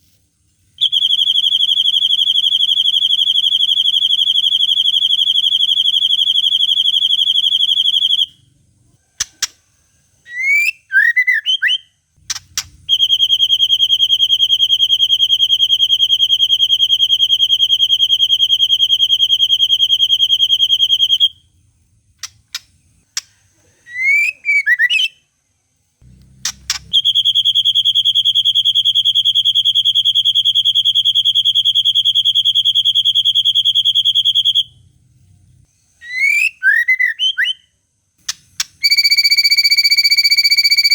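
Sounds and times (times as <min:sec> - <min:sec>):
bird clicks and chirping: 0:12.3 - 0:12.8, 0:22.2 - 0:23.4.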